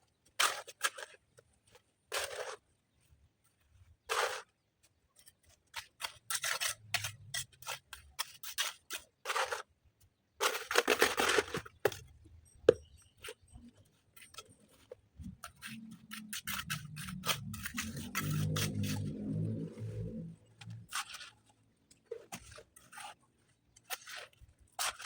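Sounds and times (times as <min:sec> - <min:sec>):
sharp scrapes and rasps: 0:00.2 - 0:09.8, 0:10.4 - 0:25.0
low hum: 0:17.2 - 0:20.9.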